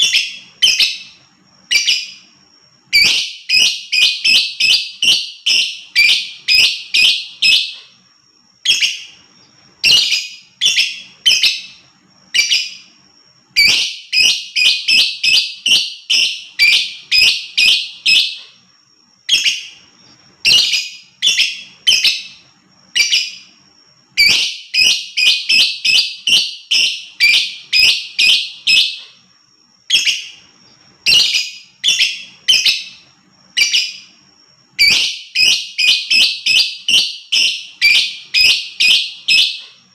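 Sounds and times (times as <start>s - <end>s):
lovebird shrill calls: 24.2s - 29.0s, 31.0s - 33.0s, 34.8s - 39.6s.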